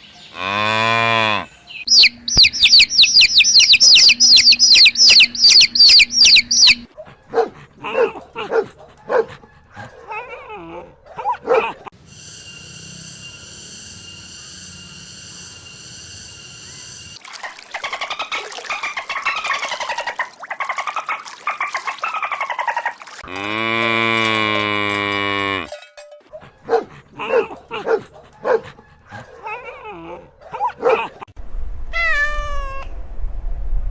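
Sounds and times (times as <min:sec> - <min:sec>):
long pitched animal call: 0:00.3 - 0:06.8
rapid chattering animal calls: 0:01.9 - 0:06.9.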